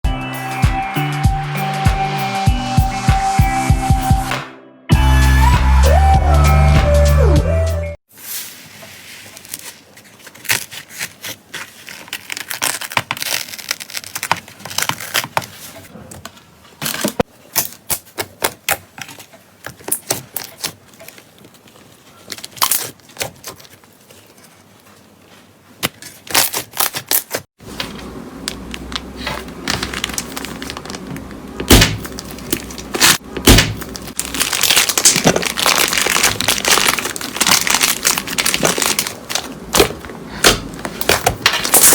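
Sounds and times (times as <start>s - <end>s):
slime squeezed by hand crackling: 31.7s - 39.5s.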